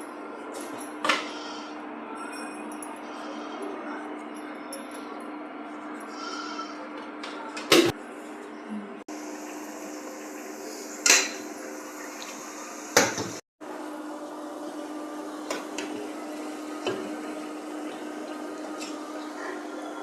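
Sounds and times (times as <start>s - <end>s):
utensils and dishes clinking: 0.5s - 8.5s.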